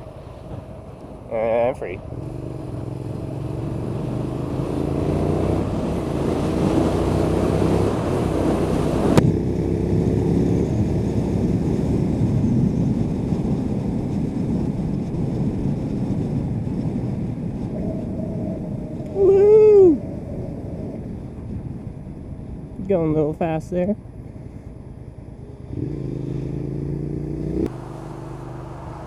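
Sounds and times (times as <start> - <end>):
wind rush: 0.0 - 29.0
motorcycle engine accelerating: 2.0 - 21.5, 25.4 - 29.0.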